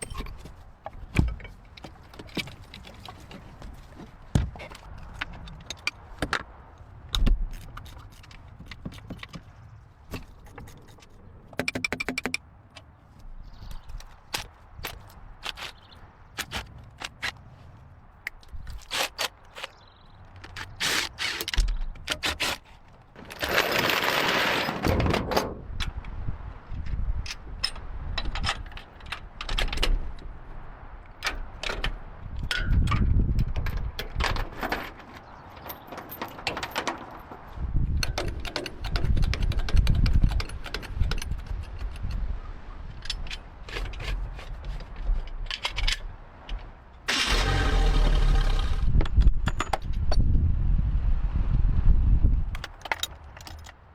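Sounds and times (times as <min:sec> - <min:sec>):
metal tools clinking and scraping: 0:00.0 - 0:00.6.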